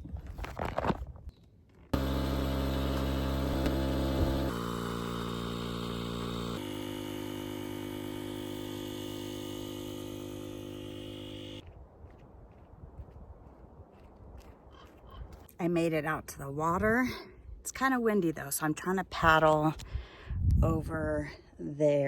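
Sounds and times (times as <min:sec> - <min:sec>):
electric pump motor humming: 0:01.9 - 0:11.6.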